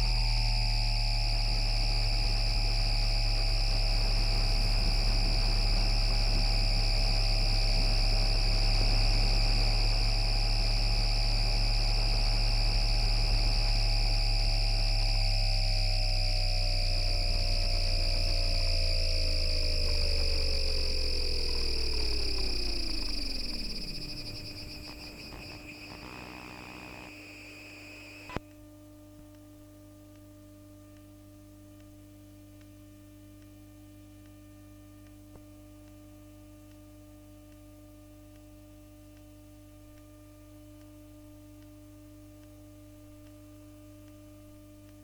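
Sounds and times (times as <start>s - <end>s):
high inverter whine: 0.0s - 28.4s
low electrical hum: 0.0s - 37.2s.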